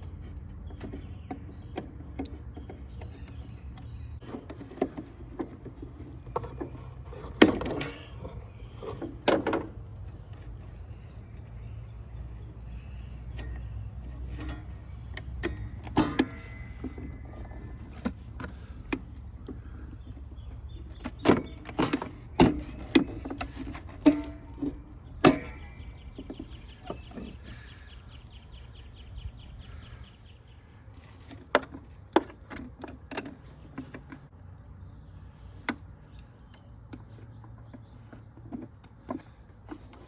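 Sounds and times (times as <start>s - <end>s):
tool clicks and metallic clanks: 14.2s - 19.6s.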